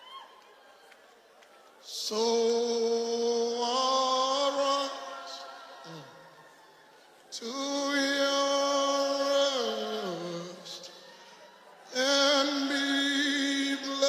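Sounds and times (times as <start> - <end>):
man chanting unaccompanied: 11.9 - 14.0.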